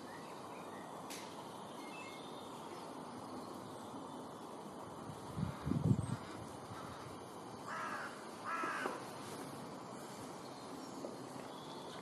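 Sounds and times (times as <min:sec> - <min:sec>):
faint outdoor background noise: 0:00.0 - 0:12.0
harsh bird calls: 0:05.4 - 0:09.3.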